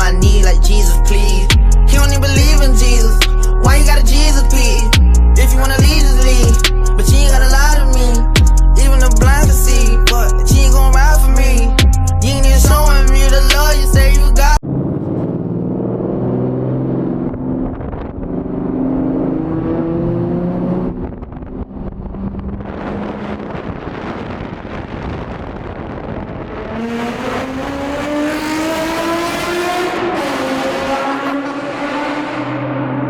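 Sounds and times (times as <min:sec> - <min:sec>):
car engine accelerating hard: 0:11.9 - 0:33.0.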